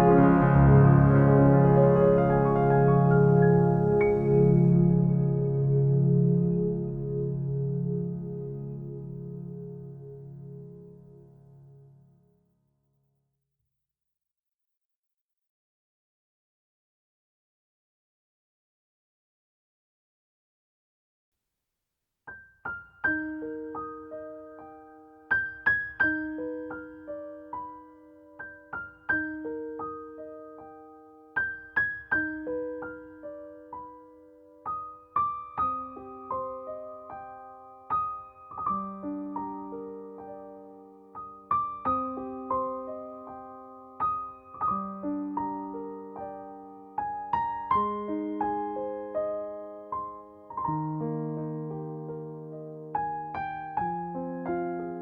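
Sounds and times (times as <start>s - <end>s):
gentle solo piano music: 0.0s - 11.0s, 22.3s - 55.0s.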